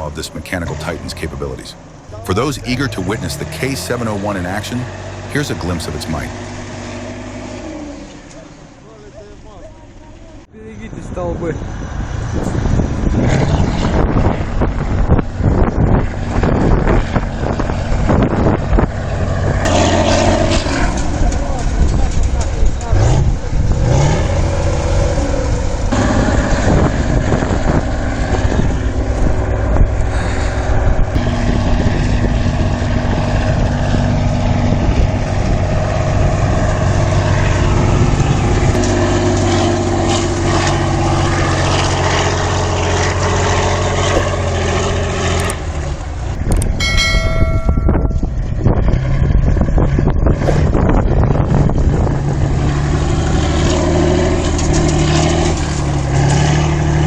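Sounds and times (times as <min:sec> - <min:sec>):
tractor diesel engine under load: 0:00.0 - 0:57.0
brief high-pitched tone: 0:46.8 - 0:48.4.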